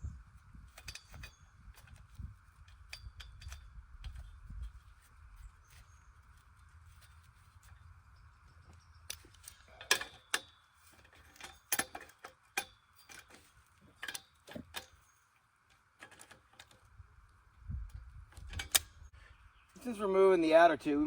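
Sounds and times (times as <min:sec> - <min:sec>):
light metallic clicks and clinks: 0:00.7 - 0:04.7, 0:08.5 - 0:15.2.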